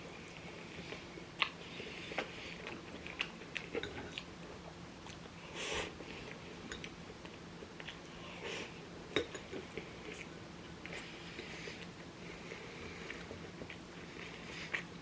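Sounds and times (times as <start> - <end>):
chewing and biting food: 0.3 - 4.3.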